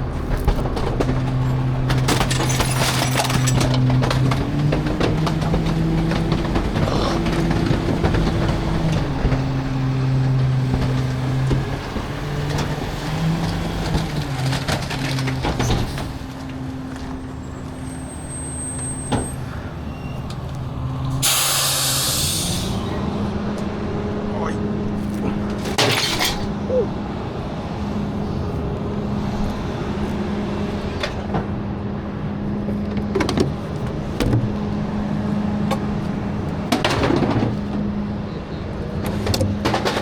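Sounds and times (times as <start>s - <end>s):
knocks and clatter: 0.0s - 17.2s, 32.6s - 34.8s, 35.6s - 38.0s, 38.8s - 40.0s
garbage truck engine running: 0.0s - 40.0s
air brake hiss: 21.2s - 22.9s.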